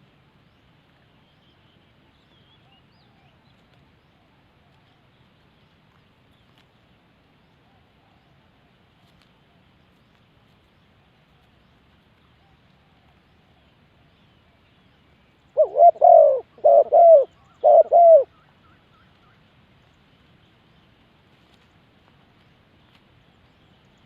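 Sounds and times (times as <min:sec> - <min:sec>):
dove cooing: 0:15.6 - 0:18.4.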